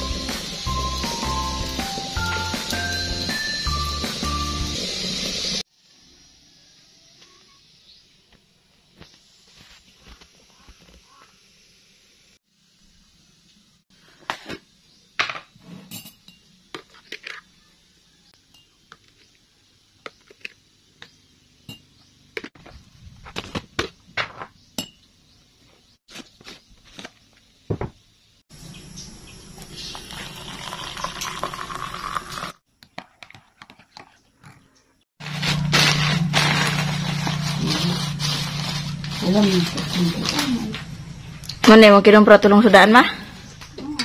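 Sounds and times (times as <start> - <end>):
liquid pouring into mug: 29.9 - 34.1.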